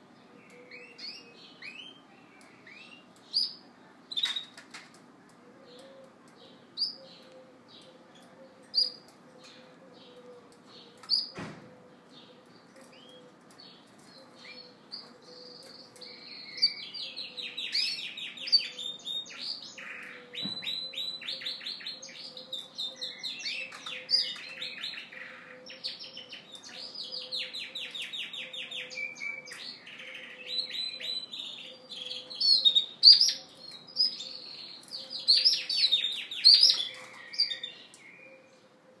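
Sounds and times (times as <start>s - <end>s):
canary singing trills and chirps: 6.4s - 9.6s, 12.3s - 38.6s.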